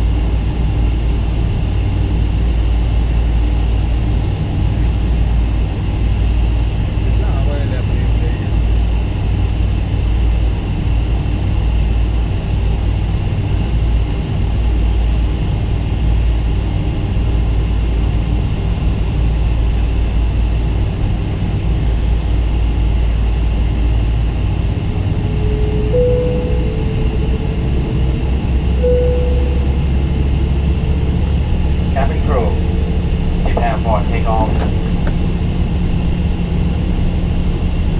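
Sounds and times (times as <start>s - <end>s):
airliner cabin engine rumble: 0.0s - 37.9s
short faint whine: 25.2s - 36.7s.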